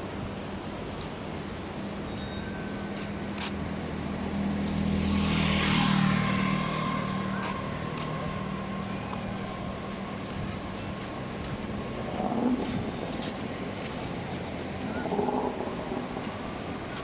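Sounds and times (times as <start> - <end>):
vehicle engine hum: 2.8 - 17.0.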